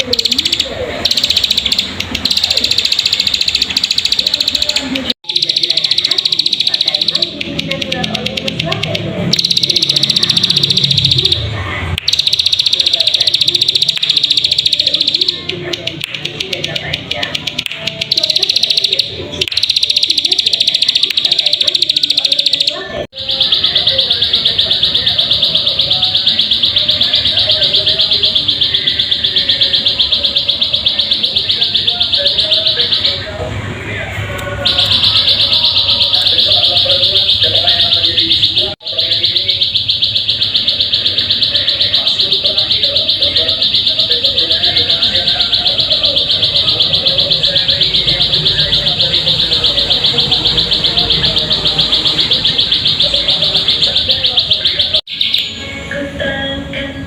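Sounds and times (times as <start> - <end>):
bird fast high trill: 34.6 - 55.6.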